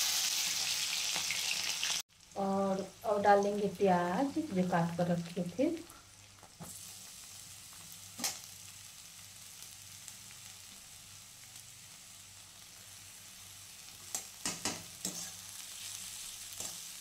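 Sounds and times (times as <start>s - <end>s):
vegetables sizzling in hot oil: 0.0s - 17.0s
spatula scraping pan: 14.5s - 16.9s.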